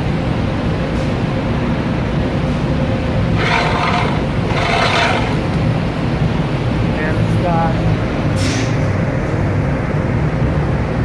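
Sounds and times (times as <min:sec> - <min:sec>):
grinder machine hum: 0:03.3 - 0:06.2
harsh scraping bursts: 0:03.4 - 0:05.8.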